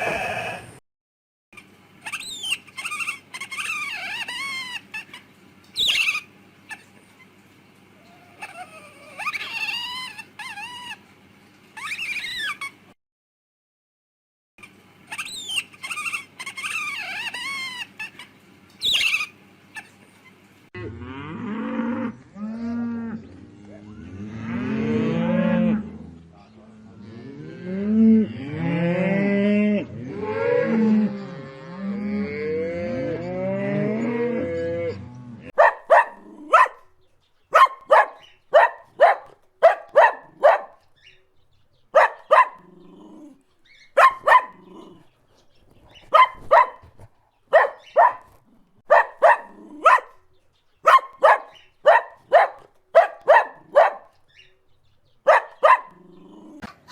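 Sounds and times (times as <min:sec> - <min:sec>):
high squeaky calls: 0:02.1 - 0:05.2, 0:05.8 - 0:06.9, 0:08.3 - 0:11.0, 0:11.8 - 0:12.8, 0:15.1 - 0:19.9, 0:35.6 - 0:50.2, 0:50.8 - 0:56.6
cattle mooing: 0:35.6 - 0:36.8, 0:37.6 - 0:40.8, 0:42.0 - 0:43.4, 0:44.0 - 0:45.1, 0:47.5 - 0:50.1
short sharp barking calls: 0:35.6 - 0:36.9, 0:37.5 - 0:41.2, 0:41.8 - 0:50.2, 0:50.8 - 0:54.5, 0:55.2 - 0:56.6.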